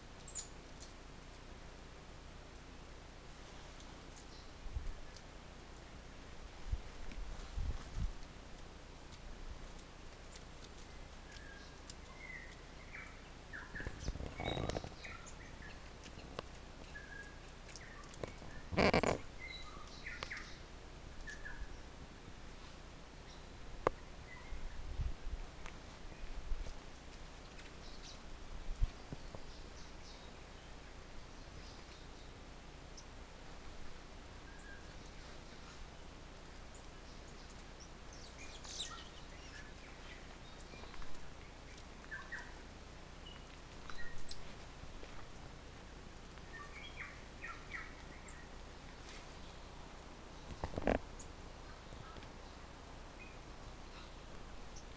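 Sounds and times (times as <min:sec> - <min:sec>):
low background hiss: 0:00.0 - 0:54.9
birds chirping and whistling: 0:11.3 - 0:16.3, 0:16.9 - 0:20.6, 0:37.0 - 0:42.6, 0:43.2 - 0:44.5, 0:46.5 - 0:48.5.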